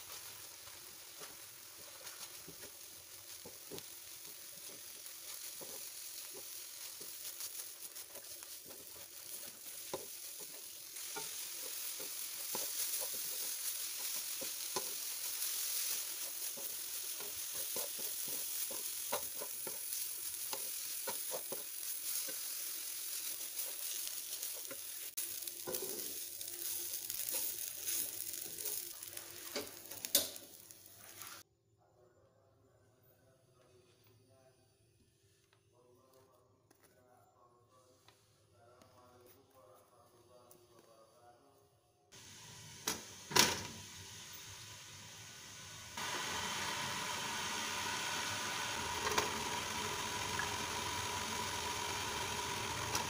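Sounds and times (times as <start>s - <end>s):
food sizzling in a pan: 0.0s - 31.5s, 42.1s - 53.0s
wooden spatula scraping pan: 1.2s - 30.1s.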